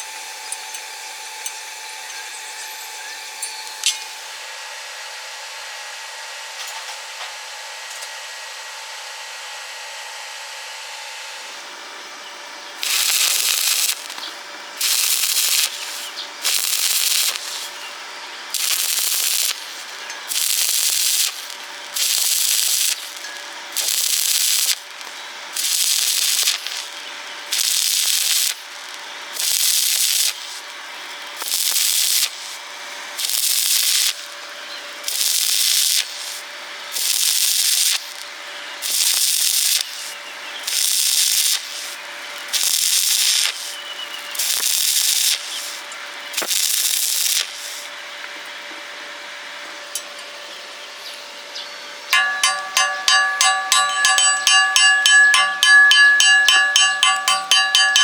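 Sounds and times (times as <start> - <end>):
welding arc crackling: 12.8 - 48.0, 52.2 - 58.0.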